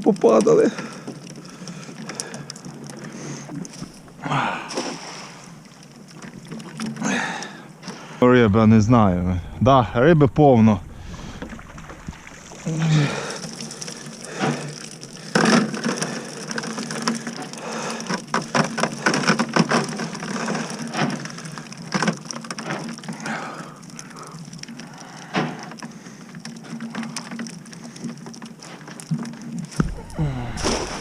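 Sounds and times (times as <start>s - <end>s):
low hum: 8.2s - 12.8s, 29.8s - 31.0s
fish knocking on hard surfaces: 29.8s - 31.0s.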